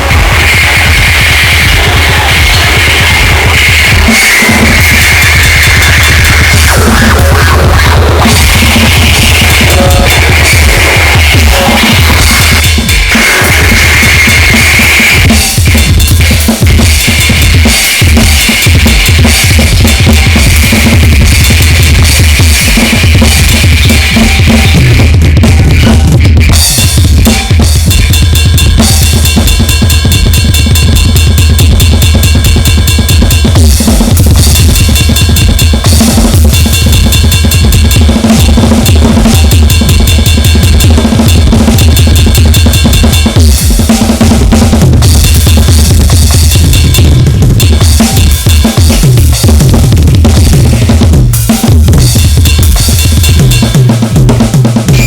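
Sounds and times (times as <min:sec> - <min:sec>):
high whining tones: 0:00.0 - 0:15.2
distorted electronic noise: 0:00.0 - 0:27.2
fast drumming: 0:00.0 - 0:55.0.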